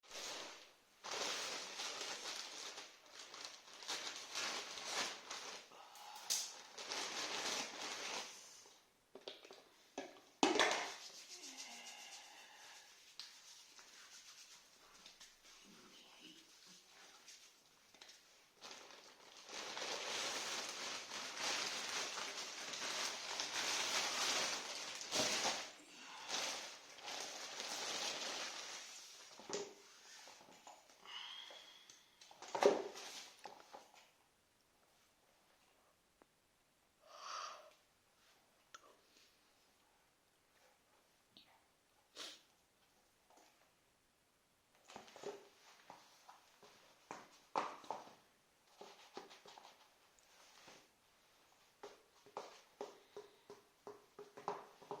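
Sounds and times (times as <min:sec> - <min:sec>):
packaging crinkling and rustling: 0:00.1 - 0:05.7, 0:06.3 - 0:08.5, 0:17.9 - 0:30.8.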